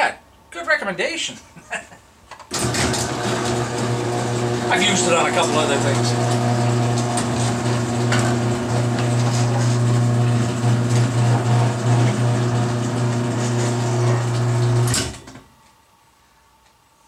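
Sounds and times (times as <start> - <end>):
garage door opener motor humming: 2.5 - 15.5.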